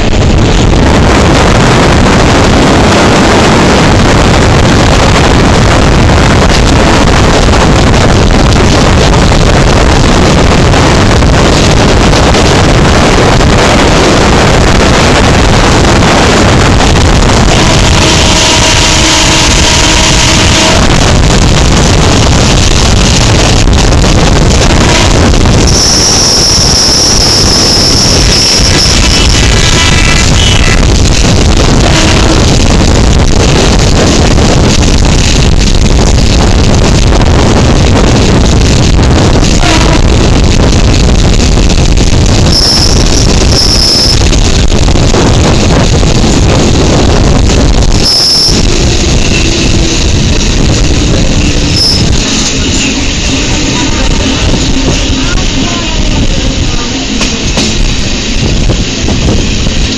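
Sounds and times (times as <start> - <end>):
train rushing noise: 0.0 - 59.9
wind buffeting microphone: 0.0 - 59.9
high-pitched squeals: 24.8 - 30.9, 42.2 - 44.5, 47.7 - 57.2.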